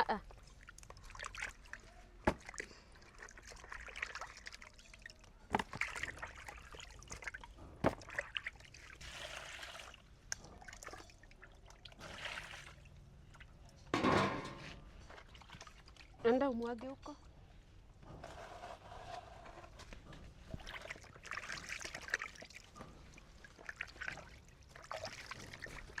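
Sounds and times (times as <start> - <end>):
water trickling and pouring: 0.3 - 14.0, 20.1 - 26.0.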